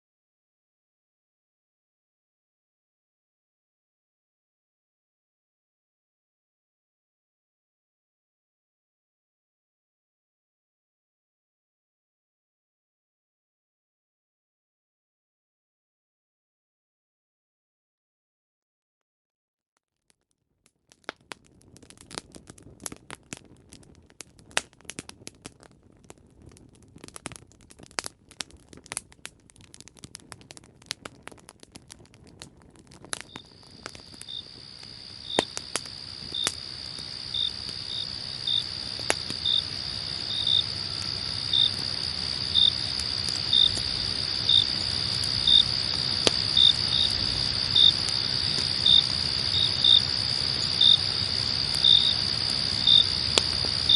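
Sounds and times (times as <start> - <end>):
campfire crackling and popping: 20.0 - 53.9
crickets chirping: 33.2 - 53.9.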